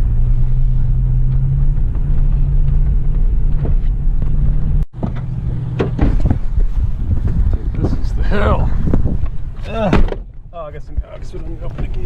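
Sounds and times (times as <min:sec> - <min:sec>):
vehicle engine hum: 0:00.0 - 0:12.0
sharp knocks and rattles: 0:01.2 - 0:07.6.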